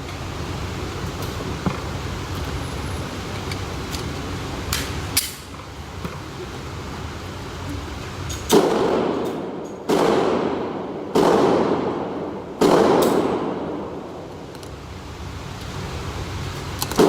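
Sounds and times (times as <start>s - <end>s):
gunshots with ringing echo: 8.5s - 14.1s.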